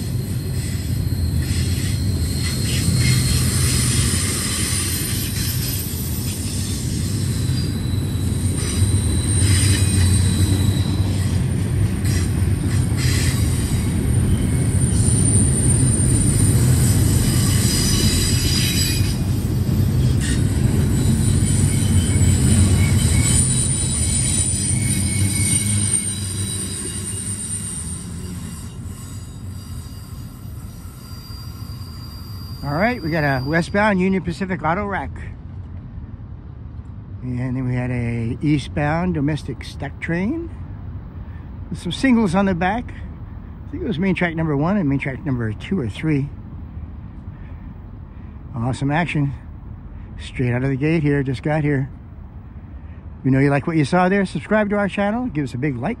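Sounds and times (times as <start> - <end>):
steel wheel squeals: 0.0 - 34.5
train wheels rumbling: 0.0 - 56.0.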